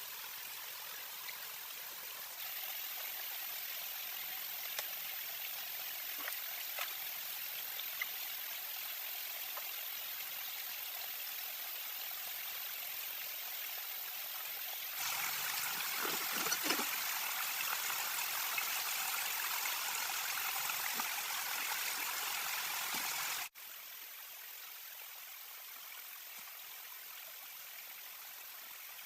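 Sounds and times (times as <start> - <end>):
water running: 14.9 - 23.5.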